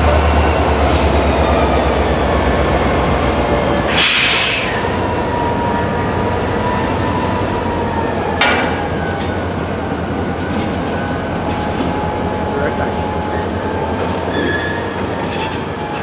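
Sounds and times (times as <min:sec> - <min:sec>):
locomotive rumble: 0:00.0 - 0:16.0
train wheels squealing: 0:00.0 - 0:16.0.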